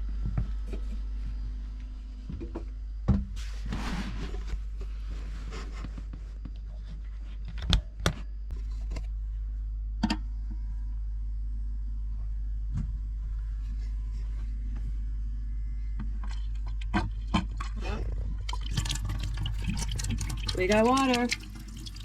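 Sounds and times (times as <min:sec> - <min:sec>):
water pump humming: 0:16.2 - 0:22.0.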